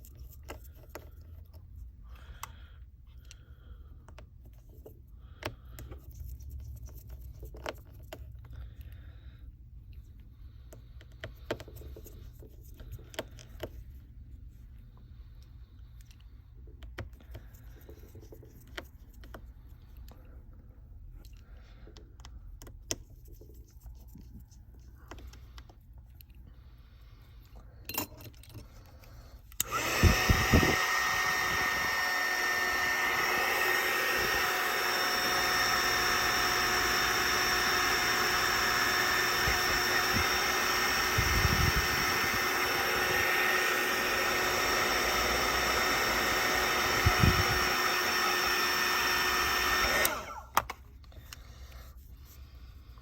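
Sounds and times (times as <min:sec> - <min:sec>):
heat gun blowing: 0:29.4 - 0:51.9
heat gun switch: 0:29.6 - 0:50.8.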